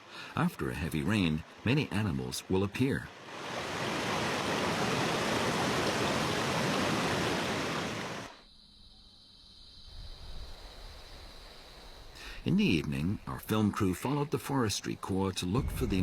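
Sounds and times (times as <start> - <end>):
rushing water: 0.0 - 8.4.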